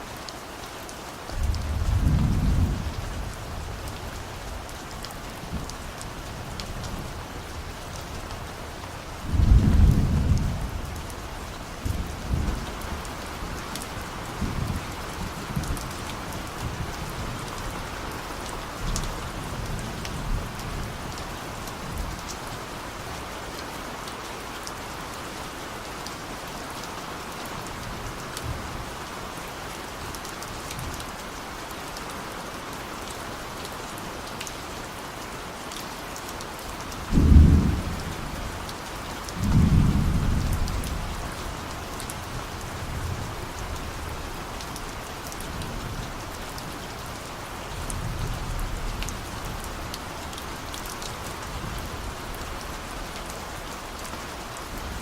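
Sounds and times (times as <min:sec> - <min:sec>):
rain drops ticking: 0:00.0 - 0:55.0
steady rain: 0:00.0 - 0:55.0
distant thunder rumbling: 0:37.1 - 0:38.7, 0:39.3 - 0:41.4.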